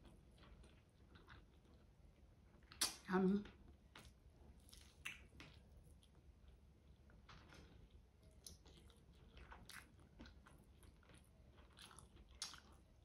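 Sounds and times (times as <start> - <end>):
person chewing food: 0.0 - 2.9, 3.6 - 13.0
wet mouth clicks and lip smacks: 2.7 - 3.1.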